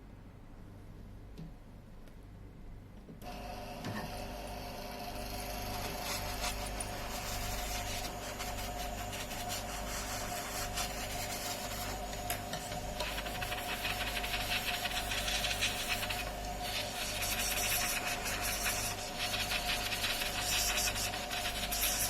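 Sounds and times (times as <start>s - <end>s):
scratchy scraping: 5.8s - 12.0s.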